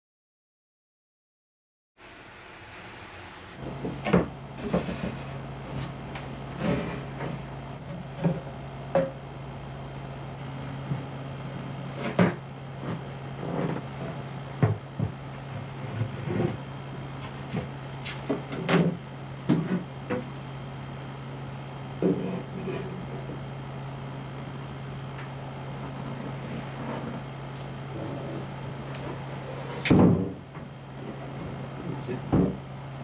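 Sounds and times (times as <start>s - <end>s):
steady low hum: 2.0s - 33.0s.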